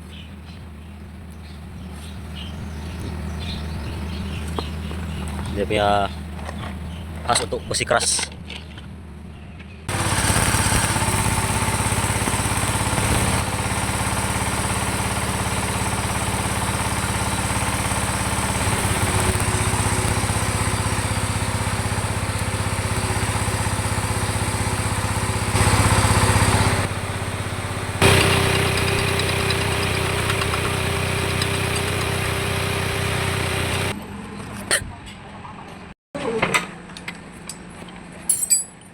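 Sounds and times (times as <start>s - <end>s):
arc welding buzzing hiss: 10.0s - 13.4s.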